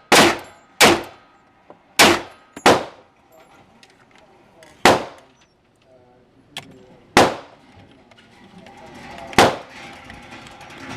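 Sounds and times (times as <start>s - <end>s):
pistol shots: 0.0s - 1.2s, 2.0s - 3.0s, 4.8s - 5.3s, 7.2s - 7.6s, 9.4s - 9.7s.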